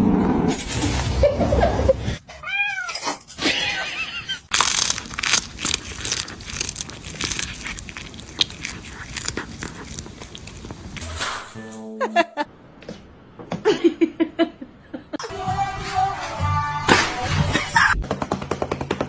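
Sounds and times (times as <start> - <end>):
cat meowing: 2.3 - 4.4.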